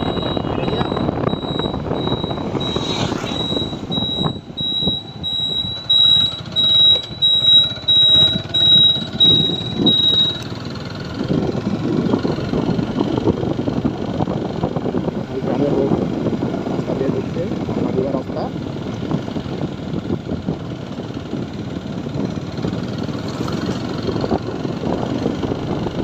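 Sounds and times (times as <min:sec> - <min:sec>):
wind on microphone: 0:00.0 - 0:10.4, 0:11.2 - 0:18.0, 0:21.4 - 0:26.0
high whine: 0:00.0 - 0:10.5
motorcycle engine rumble: 0:00.0 - 0:26.0.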